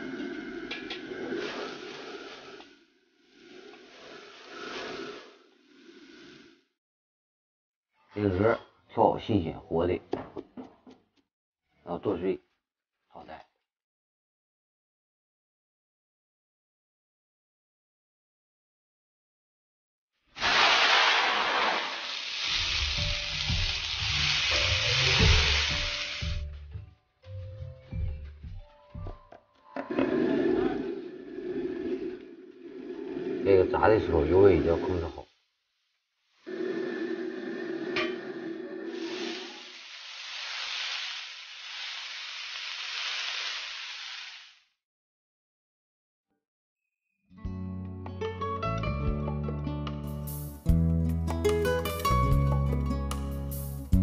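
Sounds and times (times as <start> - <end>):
food sizzling in a wok: 1.0 - 6.4, 20.4 - 26.5, 38.9 - 44.8
background music: 22.6 - 33.8, 47.4 - 54.0.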